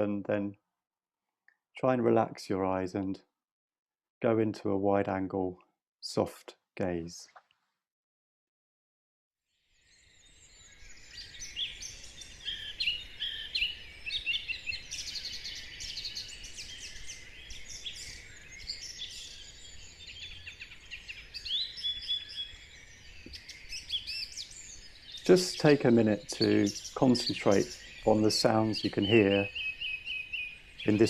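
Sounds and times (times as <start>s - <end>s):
songbirds singing: 9.7s - 31.0s.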